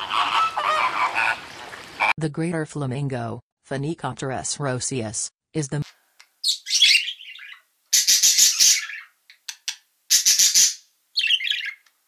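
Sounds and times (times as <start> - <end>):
lorikeet screeching: 6.4 - 9.2, 10.1 - 11.8.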